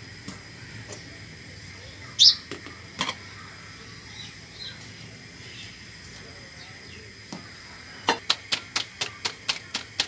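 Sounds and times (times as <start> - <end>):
bird chirping: 2.2 - 2.5.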